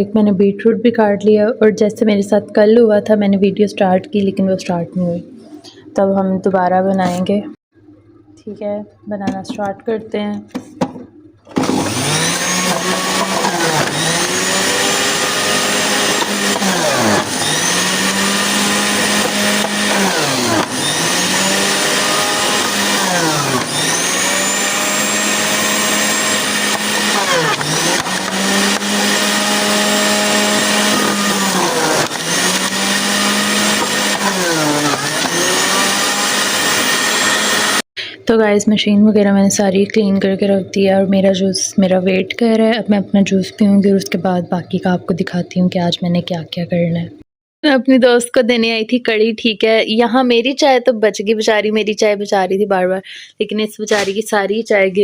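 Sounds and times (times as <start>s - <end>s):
electric juicer motor running: 11.5s - 37.8s.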